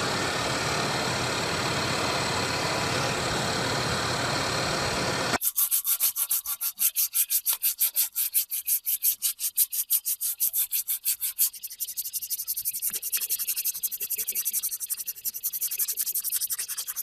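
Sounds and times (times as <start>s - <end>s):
hand sanding rasping strokes: 5.4s - 17.0s.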